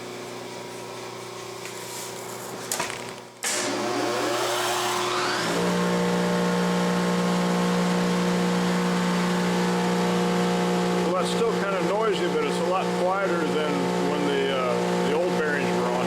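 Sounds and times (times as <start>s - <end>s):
electrical hum: 0.0s - 16.0s
planer motor whining and running: 3.4s - 16.0s.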